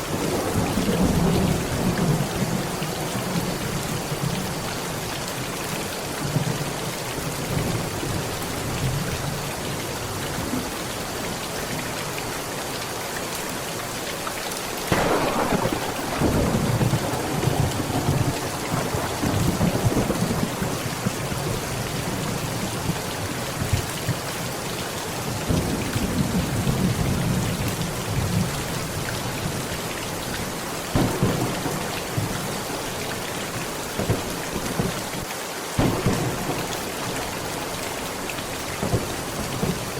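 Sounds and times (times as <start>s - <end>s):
heavy rain on a tent: 0.0s - 39.9s
thunder cracking and rumbling: 14.9s - 23.0s, 30.9s - 35.2s, 35.8s - 39.9s.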